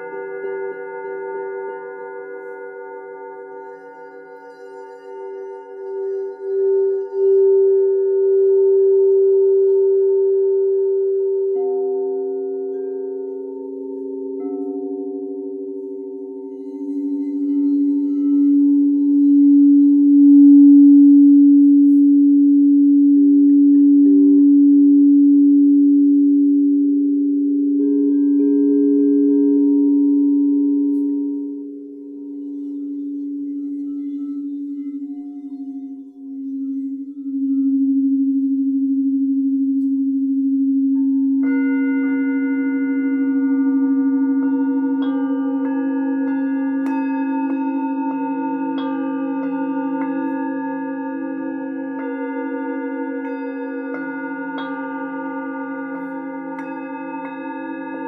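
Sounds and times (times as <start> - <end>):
singing bowls ringing: 0.0 - 58.0
struck bowl ringing: 39.8 - 58.0.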